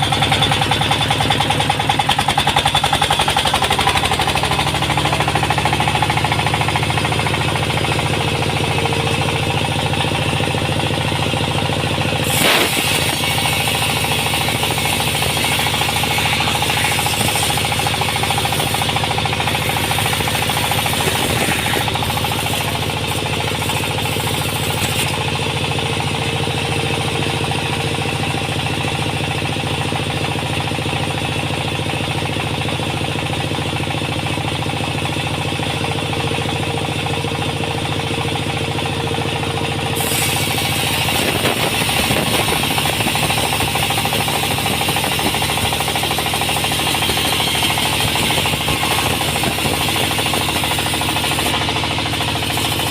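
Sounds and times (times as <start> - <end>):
sawmill machinery running: 0.0 - 52.9.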